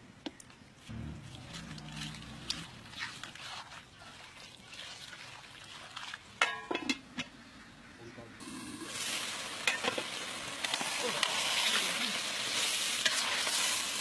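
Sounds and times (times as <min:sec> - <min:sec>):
food sizzling in hot oil: 0:08.4 - 0:14.0.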